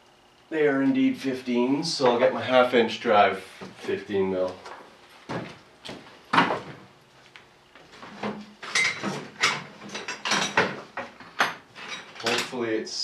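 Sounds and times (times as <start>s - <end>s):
metal tools clinking and clattering: 8.7s - 12.6s.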